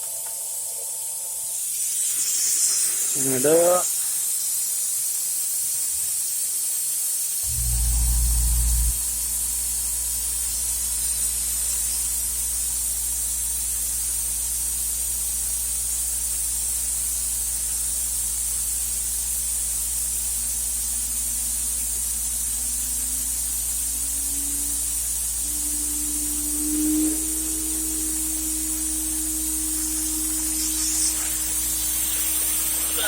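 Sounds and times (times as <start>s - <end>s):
rising spindle tone: 7.4s - 10.0s, 20.6s - 33.0s
loud low hum: 7.4s - 10.9s, 20.5s - 33.0s
router spindle running: 20.9s - 33.0s.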